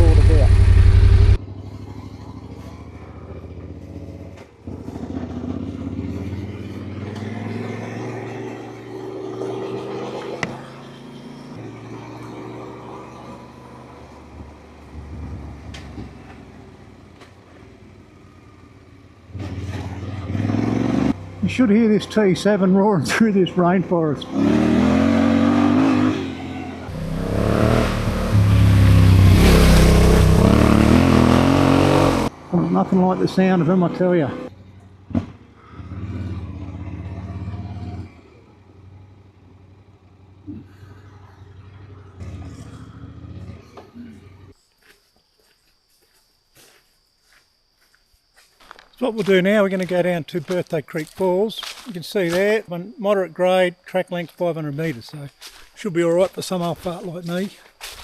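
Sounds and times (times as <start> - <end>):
motorcycle engine revving: 0.0 - 44.5.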